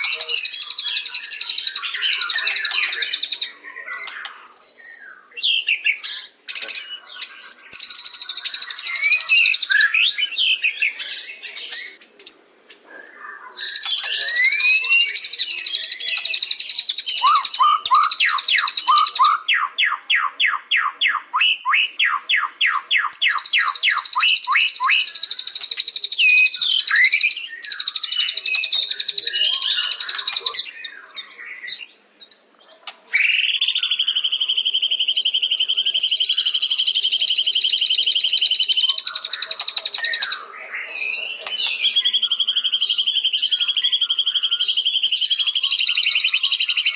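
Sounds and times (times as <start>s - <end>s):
bird singing whistles and chatters: 0.0s - 46.9s.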